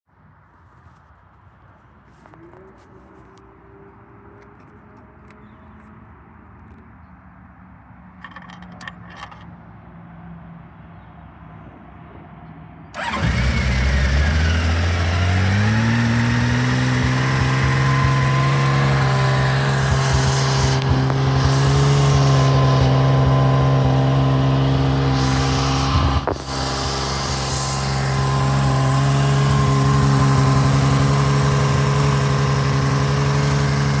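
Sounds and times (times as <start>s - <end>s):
motorcycle engine starting and idling: 2.1s - 6.8s, 8.2s - 9.4s, 13.0s - 34.0s.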